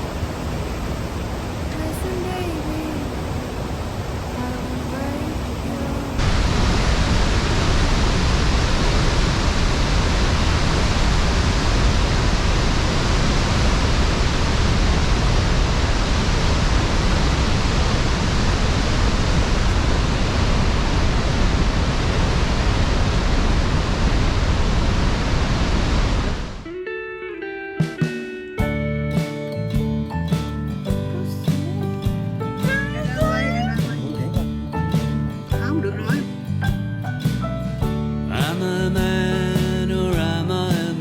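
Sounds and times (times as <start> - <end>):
waterfall rushing: 0.0 - 26.6, 31.1 - 36.4
acoustic guitar music: 1.7 - 6.2, 26.6 - 41.0.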